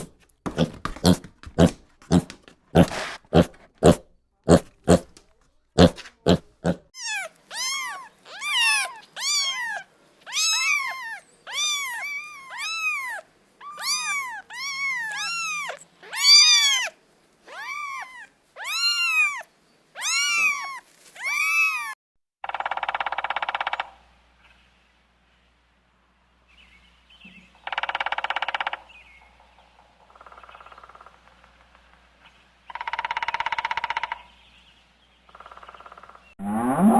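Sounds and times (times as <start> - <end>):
cat meowing: 7.0 - 22.0.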